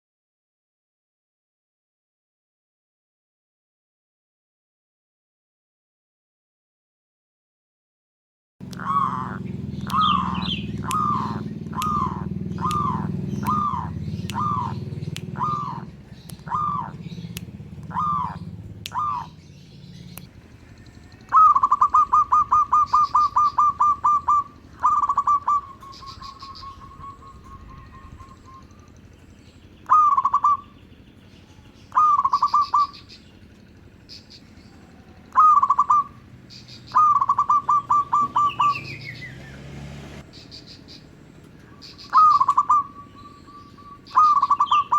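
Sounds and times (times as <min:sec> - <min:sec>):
dove cooing: 0:08.6 - 0:31.1, 0:31.7 - 0:39.7, 0:40.3 - 0:44.9
low hum: 0:08.6 - 0:42.2
faint high bird chirps: 0:08.6 - 0:44.9.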